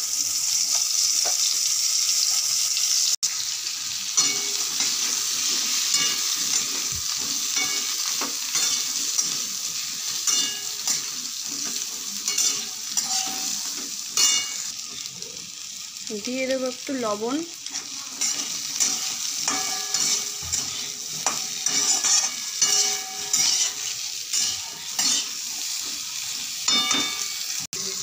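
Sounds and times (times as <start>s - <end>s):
vegetables sizzling in hot oil: 0.0s - 28.0s
spatula scraping a pan: 4.2s - 15.0s, 17.6s - 27.7s.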